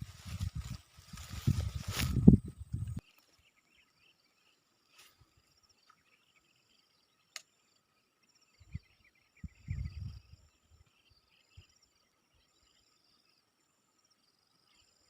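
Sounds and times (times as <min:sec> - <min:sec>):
sharp click: 0:07.3 - 0:07.5.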